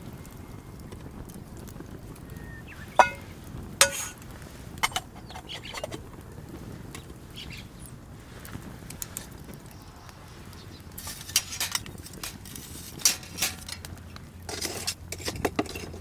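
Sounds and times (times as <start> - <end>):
steady low rumble: 1.1 - 16.0
metal cookware clinking: 3.0 - 4.2, 4.8 - 6.0, 11.0 - 16.0.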